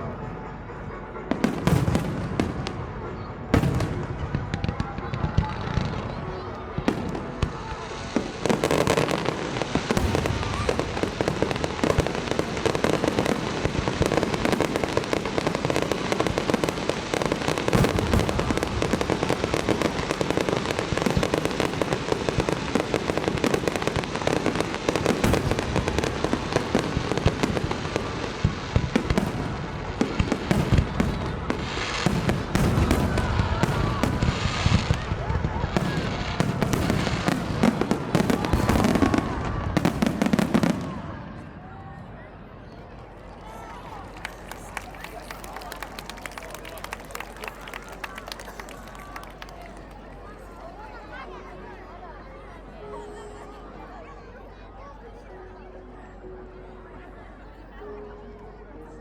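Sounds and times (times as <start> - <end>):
fireworks bursting with crackling: 1.3 - 41.4, 43.8 - 50.1.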